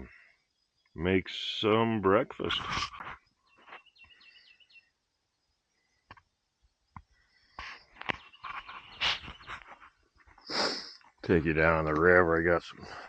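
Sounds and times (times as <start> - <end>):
small bird chirping: 2.4 - 11.2.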